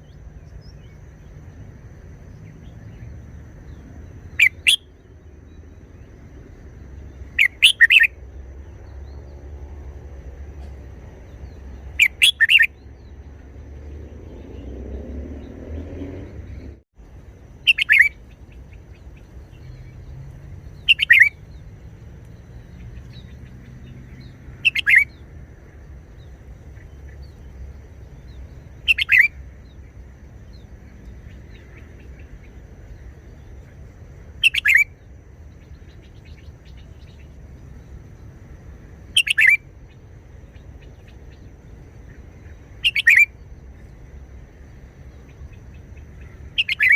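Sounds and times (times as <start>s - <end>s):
bird singing short phrases: 7.1s - 8.1s, 10.6s - 13.4s, 17.7s - 21.7s, 22.3s - 25.2s, 26.2s - 29.8s, 34.4s - 37.8s, 39.1s - 41.5s, 42.1s - 43.8s, 45.2s - 46.9s.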